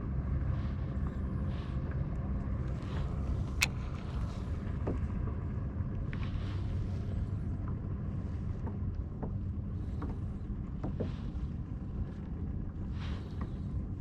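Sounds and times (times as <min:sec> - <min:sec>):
low rumble of kayak: 0:00.0 - 0:14.0
water splashing against hull: 0:00.1 - 0:14.0.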